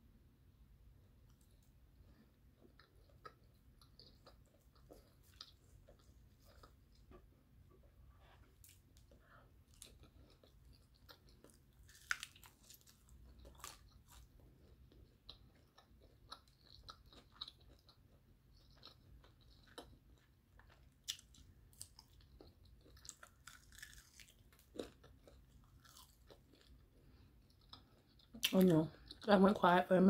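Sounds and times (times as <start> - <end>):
chewing crunchy fried chicken: 1.3 - 29.6.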